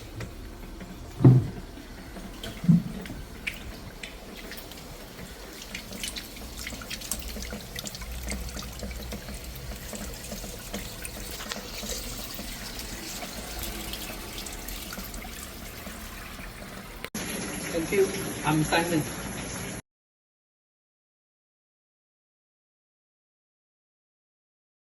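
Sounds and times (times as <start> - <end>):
water dripping: 0.1 - 18.8
water running and splashing on ice: 3.4 - 19.8.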